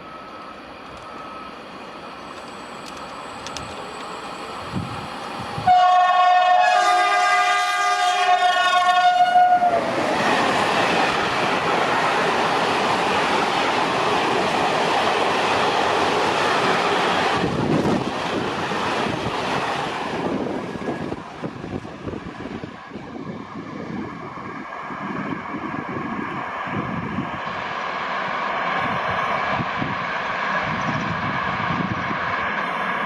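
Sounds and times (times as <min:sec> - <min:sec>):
train passing: 0:00.0 - 0:33.0
train horn chord: 0:05.7 - 0:09.8.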